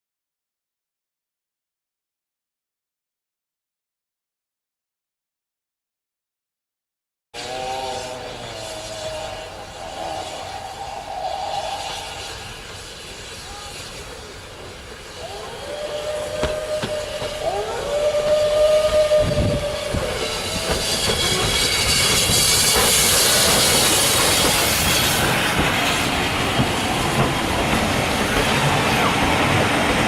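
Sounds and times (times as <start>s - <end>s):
rushing hiss: 7.4s - 30.0s
train running on rails: 7.4s - 30.0s.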